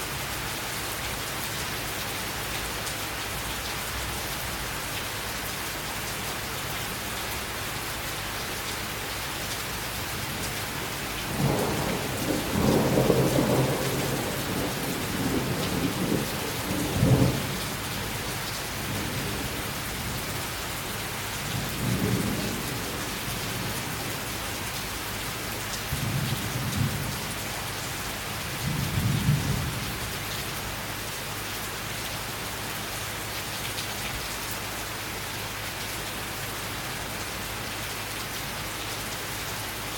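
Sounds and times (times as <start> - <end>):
steady rain falling: 0.0 - 39.9
thunder rolling: 11.3 - 17.6.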